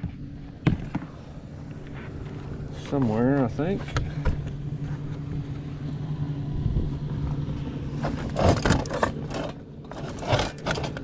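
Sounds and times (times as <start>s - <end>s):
low engine hum: 0.0s - 11.0s
rustling and clatter of rummaging: 8.0s - 11.0s.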